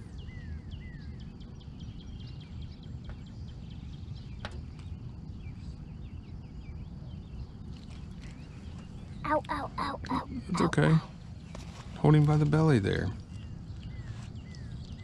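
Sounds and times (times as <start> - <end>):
wind rumble on microphone: 0.0 - 9.3
birds chirping: 0.0 - 15.0.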